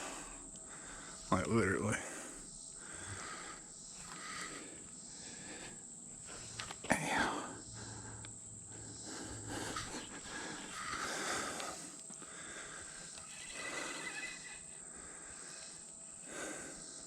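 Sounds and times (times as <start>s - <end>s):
high-pitched insect buzzing: 1.0s - 7.9s, 8.8s - 12.0s, 12.6s - 17.0s.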